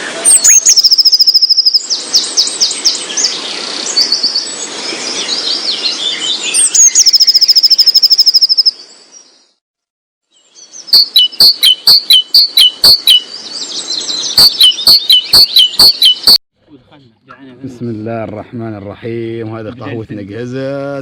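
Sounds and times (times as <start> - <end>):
birds chirping: 0.0 - 9.6, 10.3 - 16.4
sharp repeated bird call: 0.2 - 2.0, 6.6 - 8.8, 10.9 - 13.3, 14.2 - 16.4
loud bird trill: 0.3 - 4.4, 5.4 - 9.3, 10.3 - 16.4.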